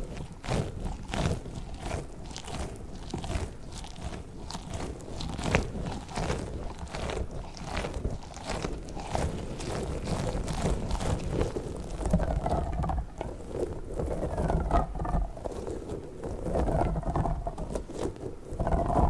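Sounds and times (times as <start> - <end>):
squishy toy crackling and squishing: 0.0 - 19.0.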